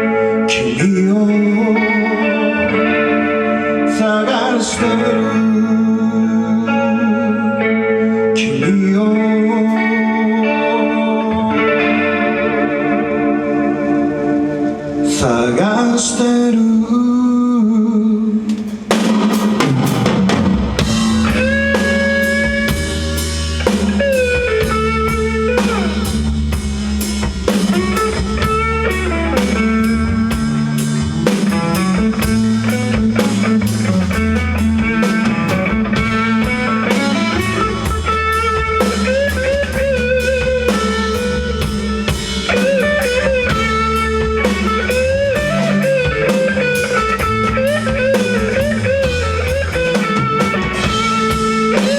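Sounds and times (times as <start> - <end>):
electric guitar melody: 0.0 - 16.5, 18.4 - 51.9
bass guitar: 0.0 - 51.9
drum kit: 18.4 - 51.9.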